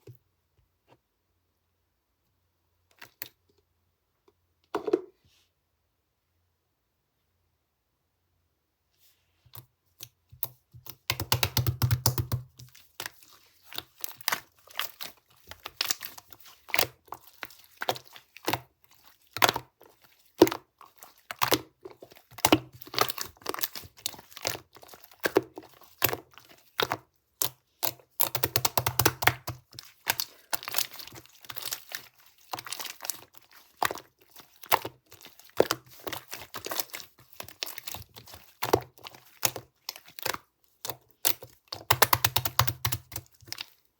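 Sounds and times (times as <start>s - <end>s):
slime crackling and popping: 21.3s - 43.6s.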